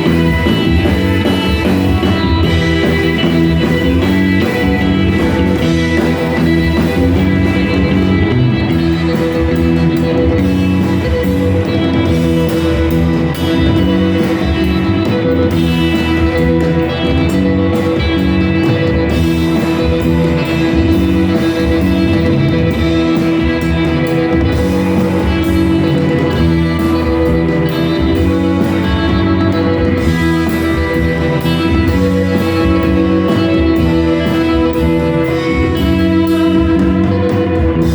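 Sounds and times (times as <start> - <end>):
rock band playing: 0.0 - 37.9.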